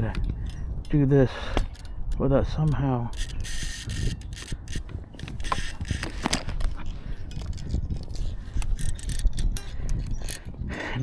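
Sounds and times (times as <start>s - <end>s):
fishing reel clicking: 3.1s - 4.8s, 5.4s - 6.2s.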